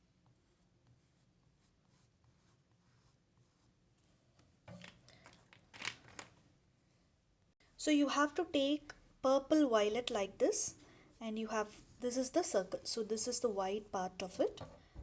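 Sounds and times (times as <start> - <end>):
oil pastel scratching on paper: 0.0 - 4.1.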